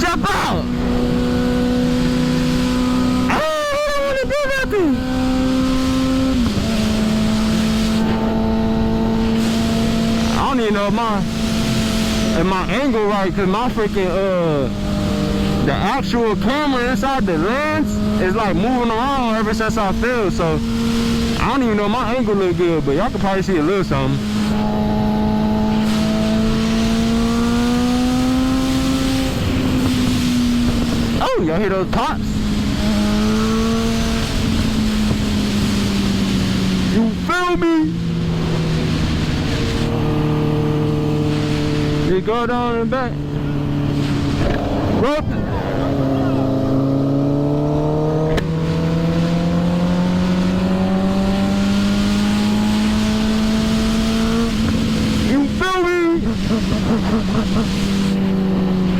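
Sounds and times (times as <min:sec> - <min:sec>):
motorcycle engine accelerating: 0:00.0 - 0:58.9
wind rush: 0:05.0 - 0:37.3, 0:37.9 - 0:42.1, 0:43.1 - 0:58.9
motorcycle engine pulling: 0:37.9 - 0:58.9.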